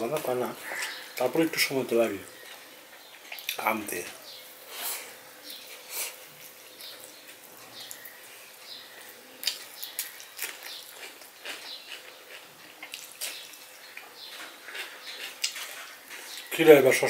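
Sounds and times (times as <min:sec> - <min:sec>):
person chewing with wet smacks: 0:09.4 - 0:16.5.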